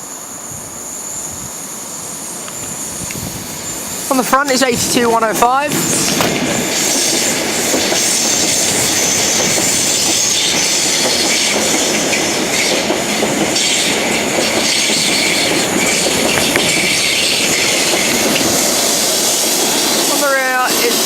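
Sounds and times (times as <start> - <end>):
train passing at speed: 0.0 - 21.0
wheels clacking over rail joints: 2.4 - 21.0.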